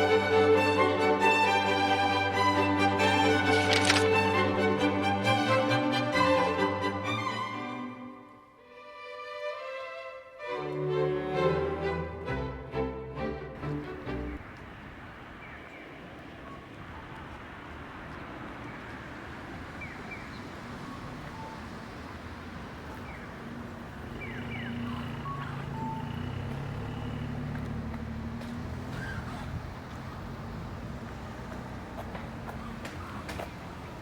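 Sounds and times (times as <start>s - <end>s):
motor vehicle engine: 13.5s - 34.0s.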